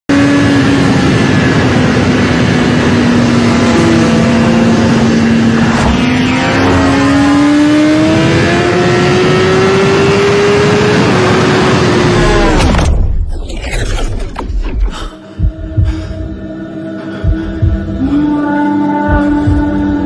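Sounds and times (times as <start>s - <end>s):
motorbike engine accelerating: 0.1s - 12.9s.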